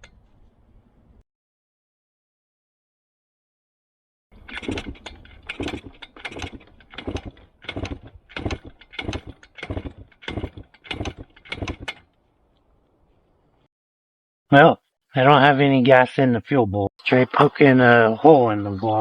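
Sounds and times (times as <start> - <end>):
engine being turned over: 4.4 - 12.2.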